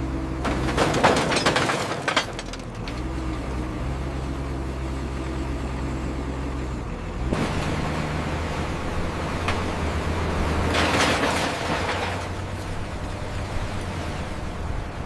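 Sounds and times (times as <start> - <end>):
heavy machine engine running: 0.0 - 15.0
scrap metal clattering: 0.4 - 3.0, 10.6 - 12.6.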